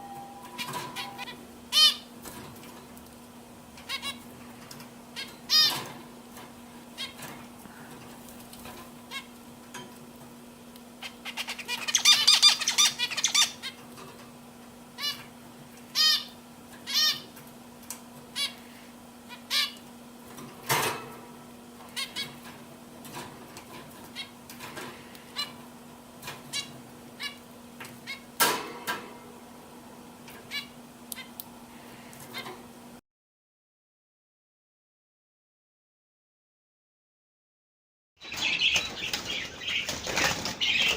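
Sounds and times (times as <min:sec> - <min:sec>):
canaries chirping: 0:00.0 - 0:02.1, 0:03.8 - 0:04.3, 0:05.2 - 0:06.0, 0:11.0 - 0:13.8, 0:15.9 - 0:17.3, 0:19.3 - 0:19.8, 0:22.0 - 0:22.4, 0:26.3 - 0:27.4, 0:28.0 - 0:28.3, 0:30.5 - 0:31.4, 0:38.2 - 0:40.9
faint steady hum: 0:00.0 - 0:33.0
rapid twittering birdsong: 0:11.0 - 0:13.8, 0:38.2 - 0:40.9.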